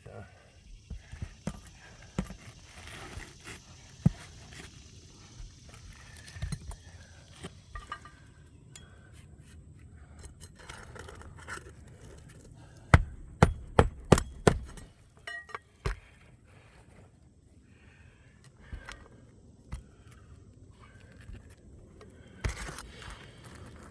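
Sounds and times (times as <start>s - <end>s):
handling clicks and scrapes: 0.9s - 17.2s, 18.4s - 23.9s
hammer striking nail: 12.9s - 14.9s.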